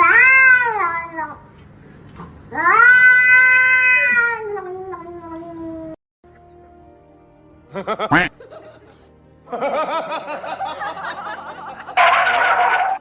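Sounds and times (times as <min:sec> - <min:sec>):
background music: 0:06.2 - 0:13.0
people laughing: 0:07.7 - 0:13.0.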